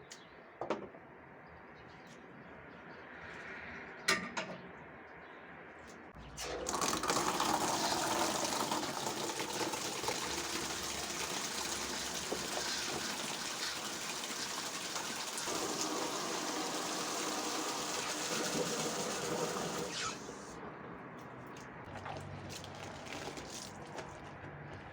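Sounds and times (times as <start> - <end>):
water gushing: 6.3 - 20.4, 21.9 - 24.3.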